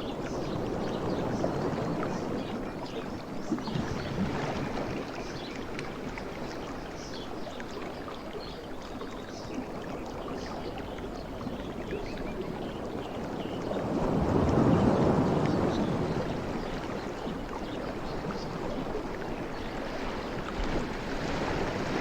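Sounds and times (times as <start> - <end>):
sea water washing on shore: 0.0 - 22.0.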